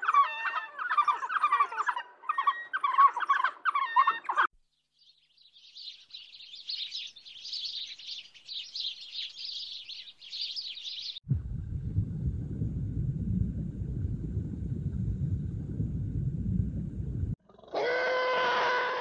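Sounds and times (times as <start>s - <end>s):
animal calls: 0.0s - 4.5s, 17.5s - 19.0s
sparrows chirping: 2.8s - 11.2s
steady low rumble: 11.2s - 17.4s.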